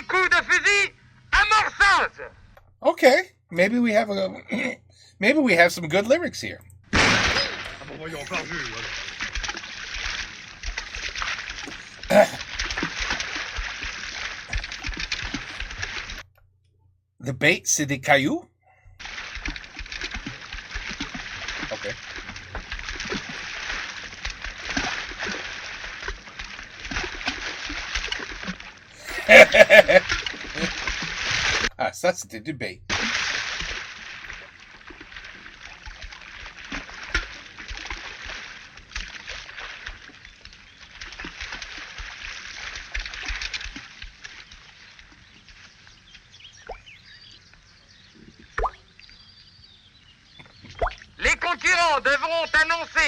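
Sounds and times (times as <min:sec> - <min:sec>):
objects plopping into water: 0:06.9 - 0:08.0, 0:48.5 - 0:48.8, 0:50.4 - 0:51.1
water splashing and sloshing: 0:06.9 - 0:16.4, 0:18.9 - 0:31.8, 0:32.9 - 0:49.6, 0:50.2 - 0:51.7.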